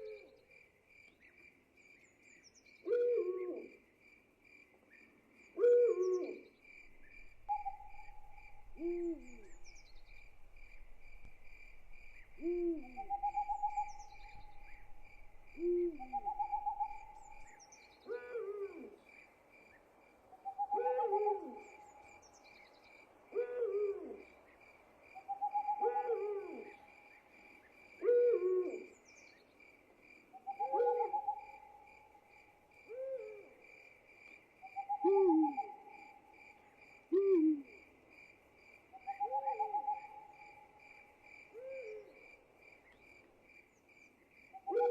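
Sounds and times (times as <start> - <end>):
crickets chirping: 0.0 - 44.9
owl hooting: 2.9 - 3.7, 7.1 - 11.4, 12.0 - 19.0, 20.4 - 22.0, 25.2 - 26.9, 28.0 - 29.0, 30.4 - 31.8, 34.7 - 36.1, 37.1 - 37.8, 39.0 - 40.6, 41.6 - 42.1, 44.6 - 44.9.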